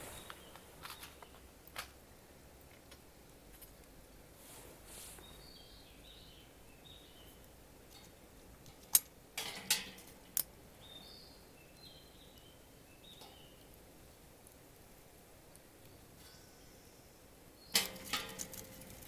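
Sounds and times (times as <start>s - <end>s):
birds chirping faintly: 0.0s - 19.0s
short scrape: 4.4s - 5.3s.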